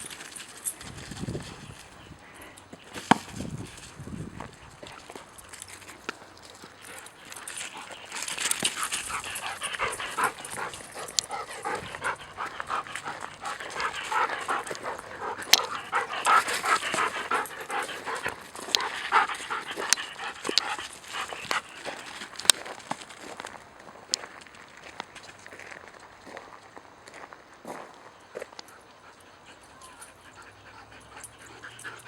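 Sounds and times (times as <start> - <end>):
dogs panting: 2.8 - 23.3, 28.6 - 32.0.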